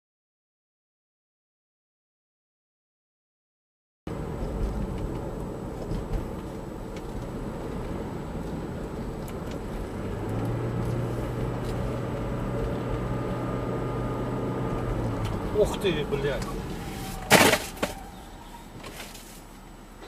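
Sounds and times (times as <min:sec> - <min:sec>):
car road and engine noise: 0:04.1 - 0:20.0.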